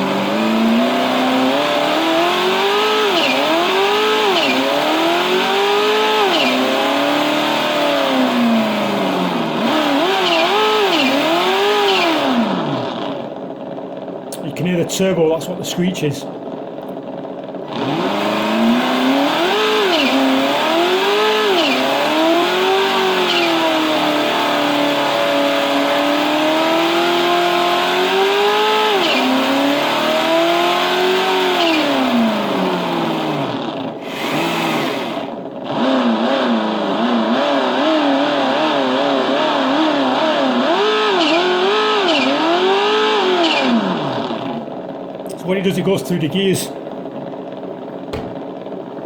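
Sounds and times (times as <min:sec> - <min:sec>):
simulated car engine revving: 0:00.0 - 0:49.0
turbo screech: 0:34.0 - 0:44.4.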